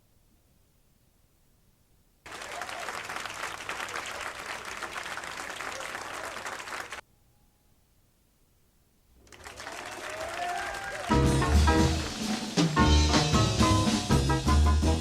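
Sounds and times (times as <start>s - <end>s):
audience applauding: 2.3s - 7.0s, 9.2s - 13.4s.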